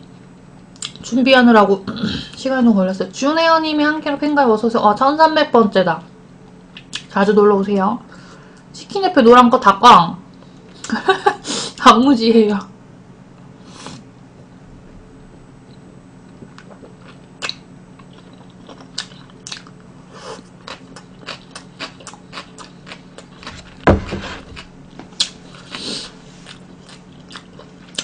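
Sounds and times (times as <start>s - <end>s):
crunchy chewing: 16.3s - 28.0s
loud thump: 23.8s - 24.6s.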